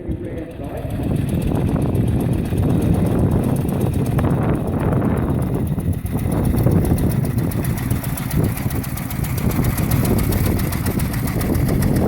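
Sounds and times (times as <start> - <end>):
engine running at low revs: 0.0 - 12.0.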